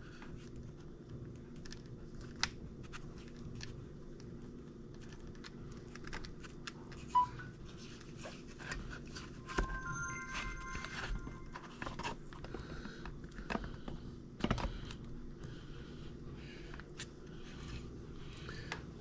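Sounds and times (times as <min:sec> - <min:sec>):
thin tones: 0:09.3 - 0:12.0
brief high tone: 0:09.3 - 0:12.1.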